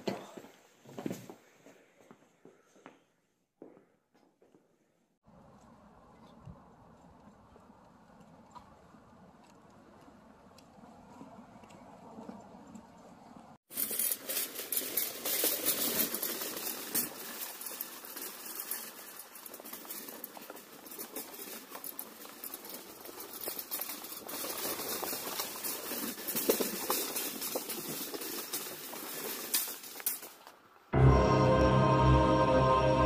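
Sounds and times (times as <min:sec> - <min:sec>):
shopping cart rattling on wooden bridge: 0:13.7 - 0:30.5.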